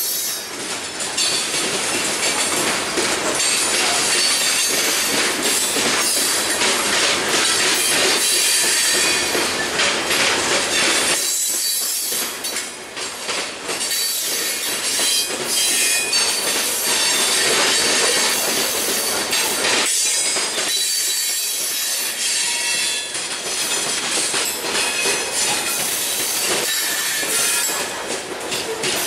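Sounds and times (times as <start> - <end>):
train wheels squealing: 0.0 - 0.6, 3.4 - 6.6, 7.4 - 9.9, 10.7 - 12.6, 13.8 - 28.0
wheels clacking over rail joints: 0.0 - 29.0.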